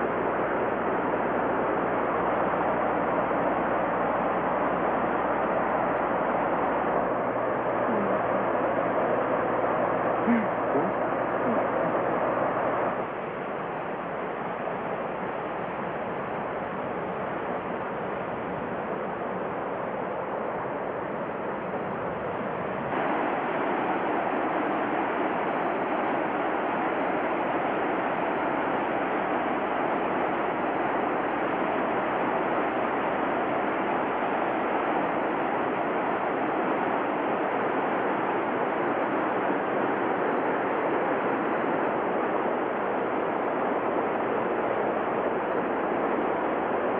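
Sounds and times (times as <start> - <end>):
river rapids rushing: 22.3 - 46.9.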